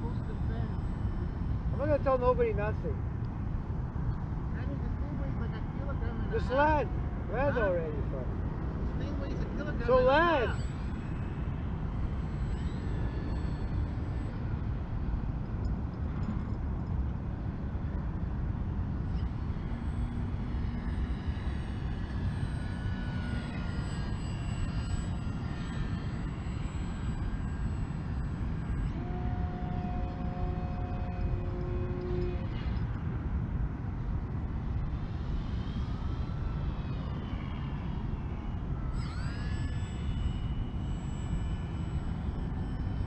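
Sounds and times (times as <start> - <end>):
model plane motor whining: 0.0 - 2.9, 5.9 - 43.0.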